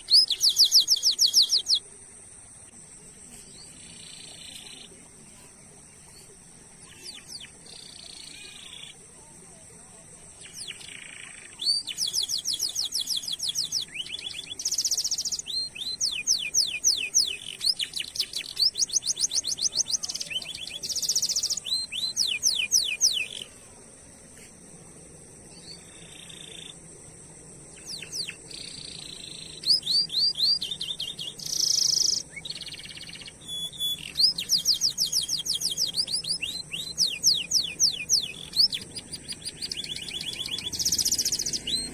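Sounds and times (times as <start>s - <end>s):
canary singing: 0.0s - 1.8s, 6.8s - 9.0s, 10.4s - 23.5s, 27.7s - 41.9s.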